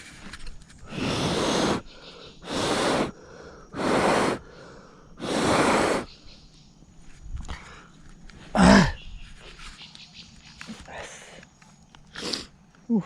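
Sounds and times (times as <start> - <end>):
person breathing out hard: 0.8 - 6.1.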